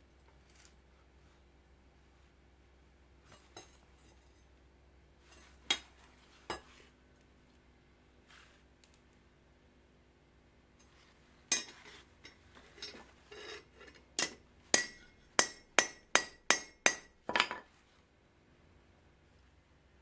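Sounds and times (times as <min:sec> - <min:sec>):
hammer striking steel rebar: 0:11.5 - 0:11.9, 0:14.2 - 0:17.6
high metallic ring: 0:13.3 - 0:18.6.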